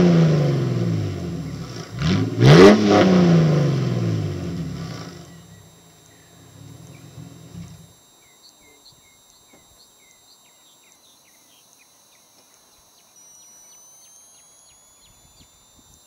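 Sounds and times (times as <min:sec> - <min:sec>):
faint high-pitched chirps: 0:05.1 - 0:16.0.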